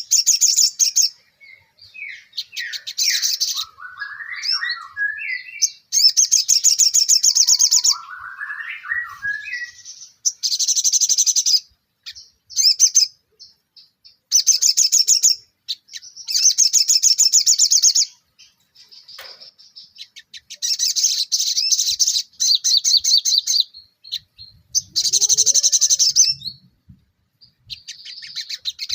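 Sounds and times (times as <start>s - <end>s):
songbird high-pitched trills: 0.0s - 26.8s, 27.4s - 28.9s
rising whistled bird phrases: 0.1s - 13.1s, 19.8s - 26.8s, 27.4s - 28.9s.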